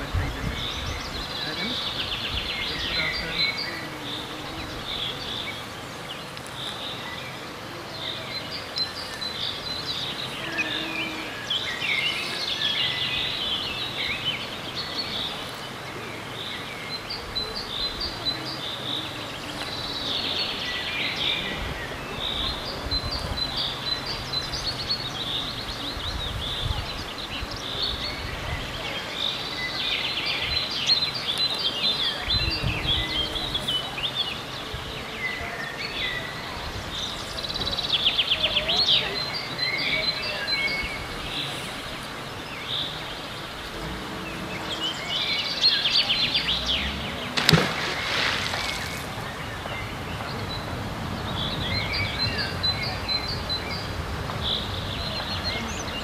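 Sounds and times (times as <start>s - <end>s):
birds singing and chirping: 0.0s - 56.0s
outdoor background noise: 0.0s - 56.0s
low rumbling: 42.7s - 56.0s.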